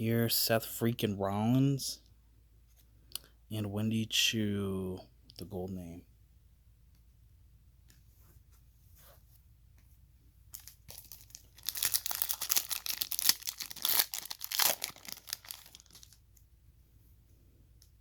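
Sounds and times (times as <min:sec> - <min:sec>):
foil wrapper tearing and crinkling: 0:10.6 - 0:16.2.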